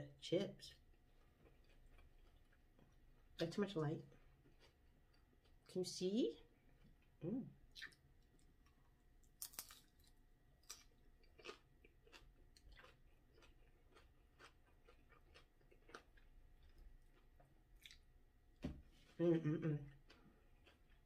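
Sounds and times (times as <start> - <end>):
faint chewing: 0.7 - 3.4, 4.0 - 5.8, 6.4 - 18.1, 19.0 - 21.0
soft crunches of chips: 6.7 - 18.1.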